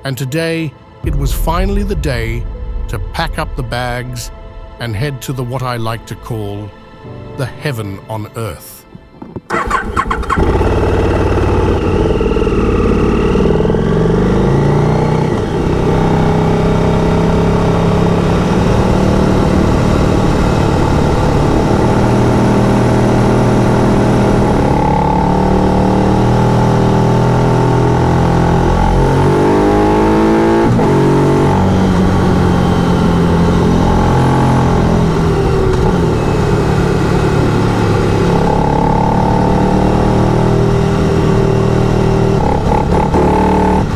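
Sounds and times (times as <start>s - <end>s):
motorcycle engine revving: 9.5s - 43.9s.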